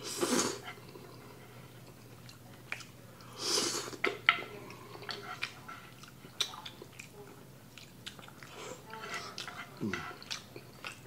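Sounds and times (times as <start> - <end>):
slurping and wet chewing noodles: 0.0 - 11.0.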